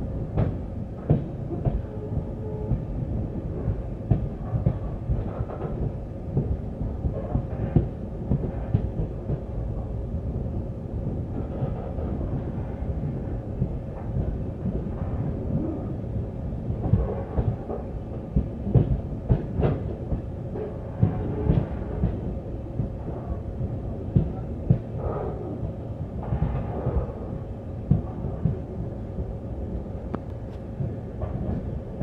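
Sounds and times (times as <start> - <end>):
train rumbling on track: 0.0 - 32.0
clanks and knocks of train wheels: 0.1 - 32.0.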